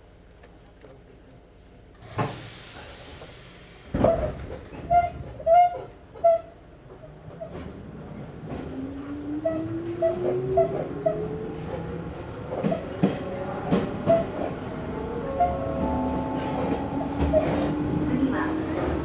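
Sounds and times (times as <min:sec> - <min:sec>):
rail-joint clacks: 0:02.0 - 0:19.0
electric train motor whine: 0:13.8 - 0:19.0.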